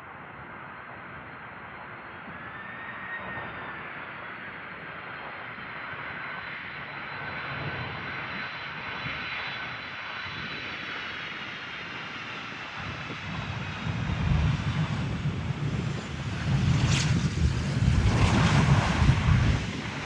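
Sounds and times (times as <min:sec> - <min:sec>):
jet engines rushing: 0:01.7 - 0:20.0
wind buffeting microphone: 0:11.8 - 0:20.0.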